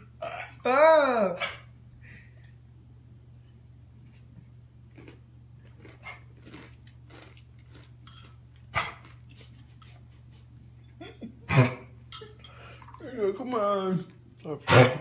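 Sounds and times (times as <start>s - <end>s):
dog coughing: 11.4s - 11.9s, 14.6s - 15.0s.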